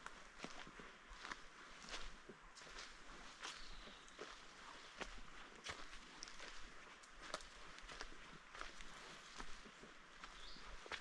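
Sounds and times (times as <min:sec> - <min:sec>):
footsteps crunching on trail: 0:00.0 - 0:11.0.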